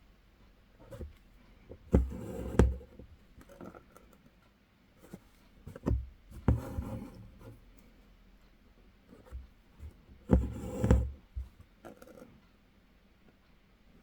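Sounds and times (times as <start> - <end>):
needle tapping through fabric: 5.7 - 7.0.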